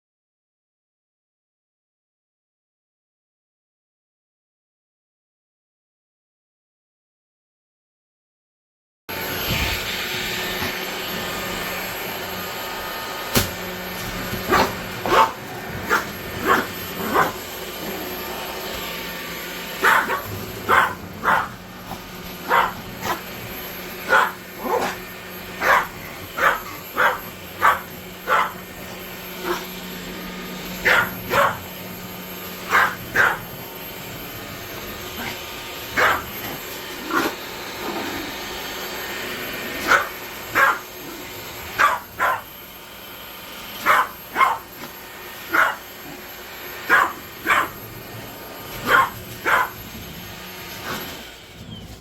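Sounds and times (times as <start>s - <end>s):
stick vacuum cleaner humming: 9.1s - 52.0s
dog barking: 14.4s - 17.5s, 19.6s - 28.8s, 29.4s - 29.8s, 30.8s - 31.8s, 32.6s - 33.6s, 35.2s - 38.2s, 39.8s - 42.5s, 43.8s - 48.0s, 48.7s - 49.9s.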